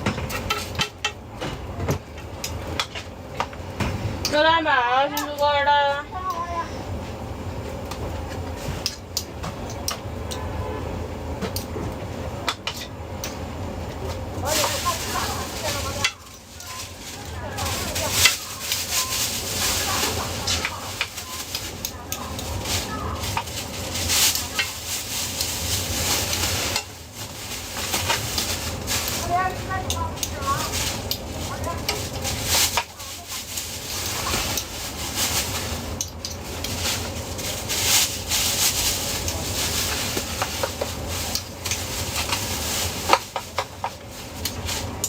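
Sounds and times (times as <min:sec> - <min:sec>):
stirring clicks and clatters: 0:12.4 - 0:45.0
food sizzling in pan: 0:13.5 - 0:45.0.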